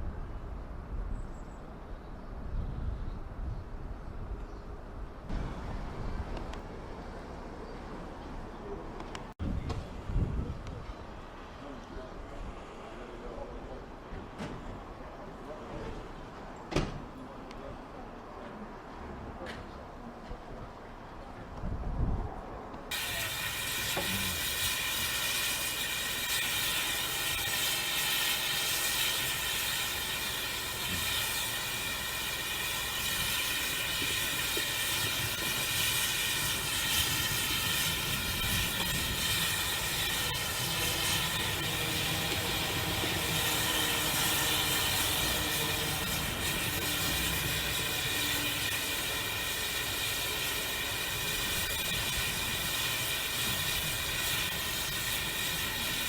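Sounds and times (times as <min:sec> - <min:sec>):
steady tones: 0:22.9 - 0:56.0
steam locomotive hissing: 0:22.9 - 0:56.0.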